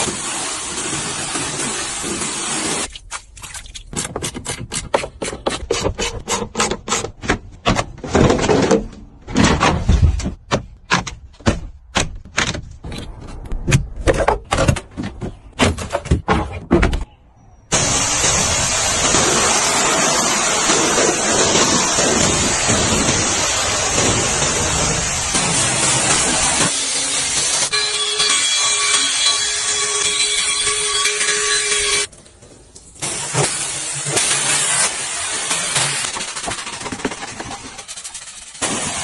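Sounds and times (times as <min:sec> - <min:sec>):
water spray hissing: 0:17.8 - 0:27.7.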